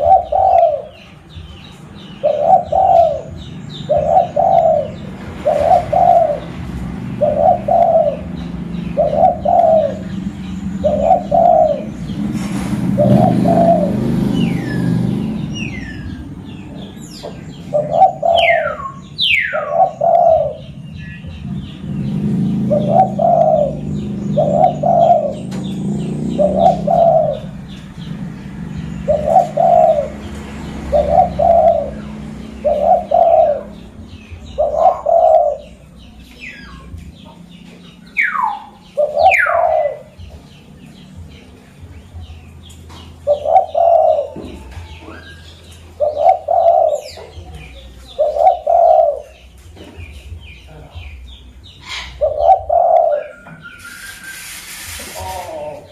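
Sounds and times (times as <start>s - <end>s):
dove cooing: 0.0s - 1.4s, 2.2s - 40.5s, 43.0s - 49.5s, 51.8s - 55.9s
bird falling whistles: 53.4s - 54.7s.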